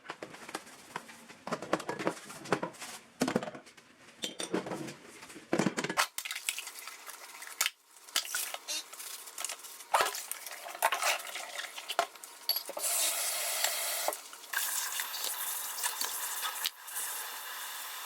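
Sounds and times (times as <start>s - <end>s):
sizzling hiss: 14.5s - 18.0s.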